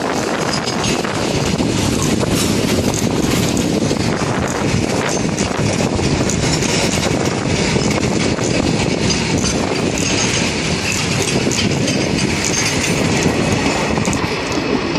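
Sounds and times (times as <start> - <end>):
freight wagons rolling on rails: 0.0 - 14.9
wagons clicking and clanking: 0.0 - 14.9.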